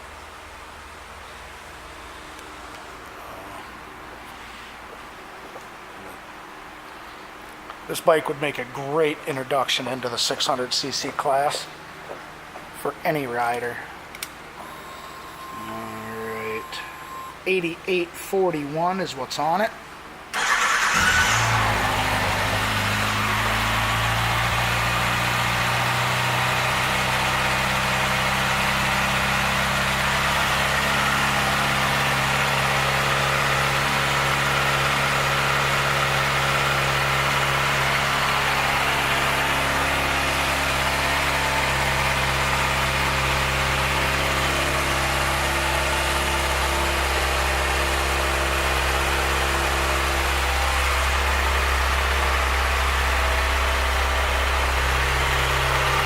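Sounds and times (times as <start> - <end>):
motorcycle engine starting and idling: 20.3 - 56.0.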